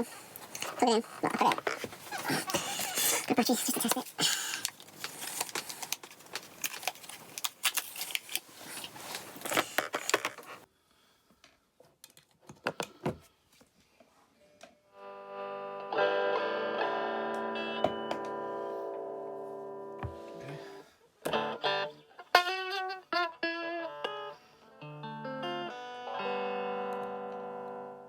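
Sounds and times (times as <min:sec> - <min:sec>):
overdriven electric guitar chord: 0:15.0 - 0:20.5, 0:23.4 - 0:28.0.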